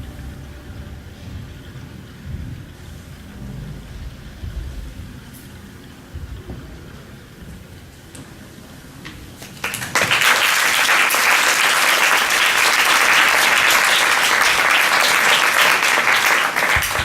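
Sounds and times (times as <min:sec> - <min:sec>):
audience applause: 0:09.4 - 0:17.0.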